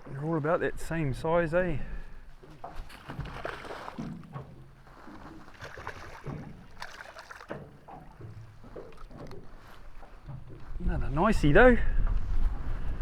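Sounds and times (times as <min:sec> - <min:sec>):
boat engine rumble: 0:00.0 - 0:13.0
water slapping against hull: 0:01.9 - 0:11.2
knocks and clunks: 0:07.4 - 0:10.8.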